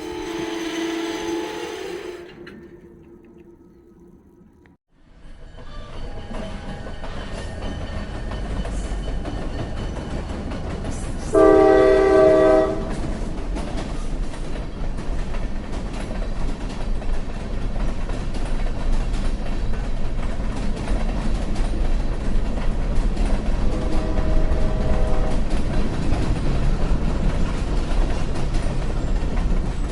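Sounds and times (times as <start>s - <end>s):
train horn blast: 0.0s - 3.0s, 11.3s - 13.0s, 23.6s - 25.6s
train rumbling on rails: 0.0s - 29.9s.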